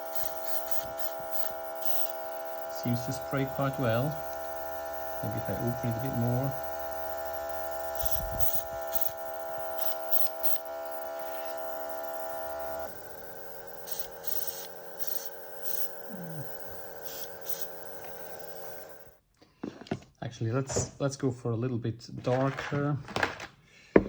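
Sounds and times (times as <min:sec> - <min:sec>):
airbrush air hisses: 0:00.0 - 0:19.1
compressor motor humming: 0:00.0 - 0:19.2.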